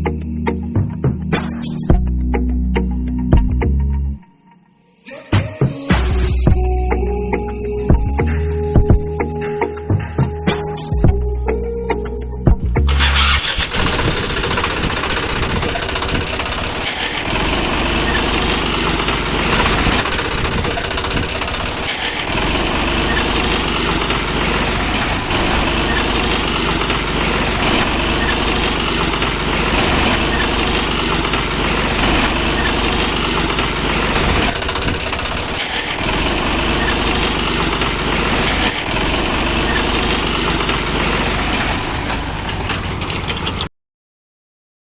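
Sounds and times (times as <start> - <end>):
small tractor engine running: 12.8 - 43.7.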